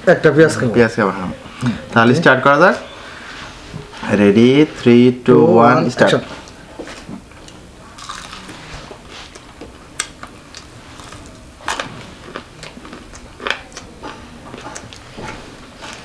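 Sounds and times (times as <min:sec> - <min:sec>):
crunchy chewing: 0:06.4 - 0:16.0.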